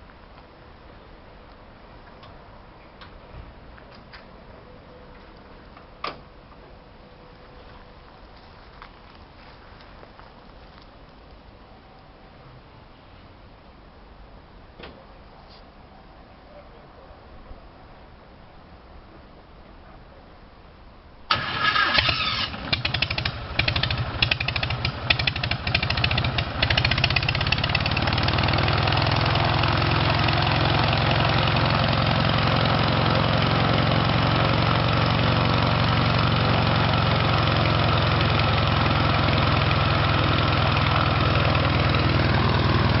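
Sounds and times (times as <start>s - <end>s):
aircraft piston engine starting: 21.3s - 28.0s.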